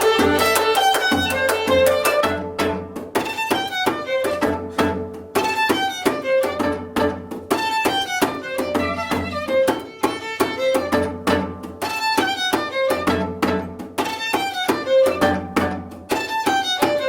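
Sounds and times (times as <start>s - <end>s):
plucked zither melody: 0.0s - 5.0s.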